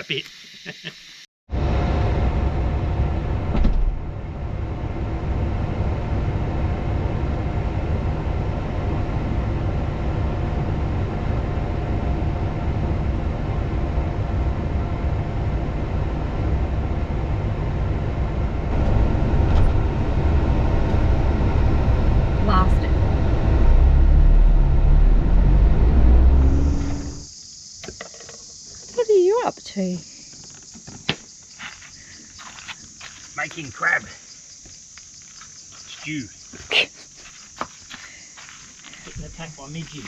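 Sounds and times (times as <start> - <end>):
large vehicle rumbling: 1.5 - 27.3.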